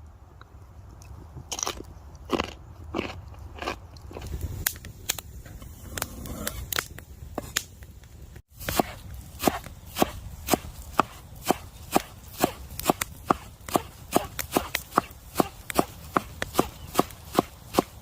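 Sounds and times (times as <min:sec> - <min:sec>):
knife chopping on cutting board: 0:08.6 - 0:18.0.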